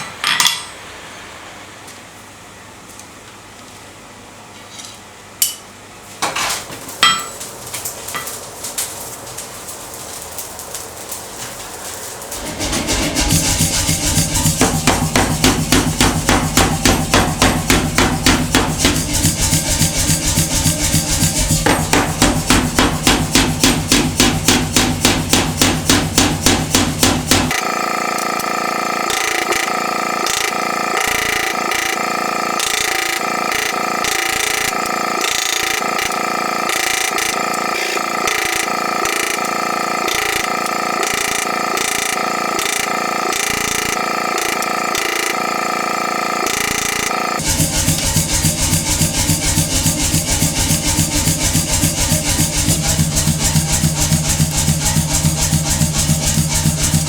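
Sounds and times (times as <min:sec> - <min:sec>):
power hammer striking hot steel: 0:12.0 - 0:57.0
rasping power tool: 0:12.2 - 0:57.0.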